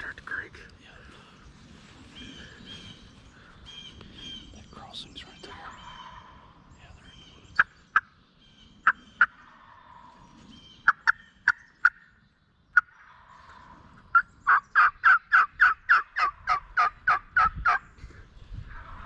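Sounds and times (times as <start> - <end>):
turkey yelping: 5.7 - 6.5, 10.8 - 12.0, 12.8 - 17.8.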